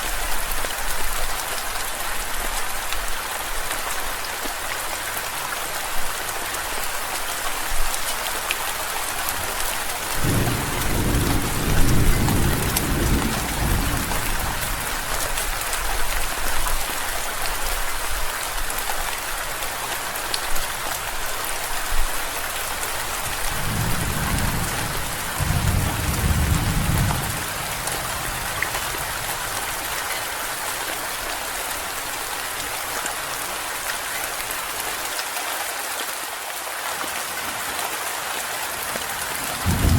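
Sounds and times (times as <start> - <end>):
thunder rolling: 10.2 - 14.8, 23.4 - 29.3, 39.6 - 39.9
rain hissing: 39.3 - 39.9.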